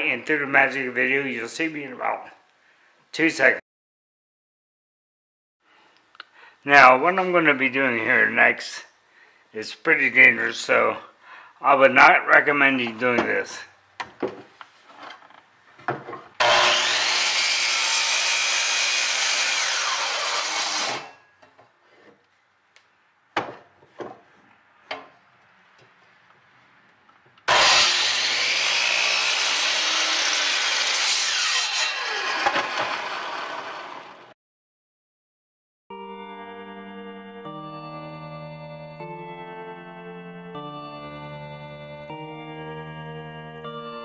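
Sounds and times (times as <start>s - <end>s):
wood knocking: 14.0s - 14.6s, 23.4s - 24.3s
power saw cutting wood: 16.4s - 21.2s, 27.5s - 34.4s.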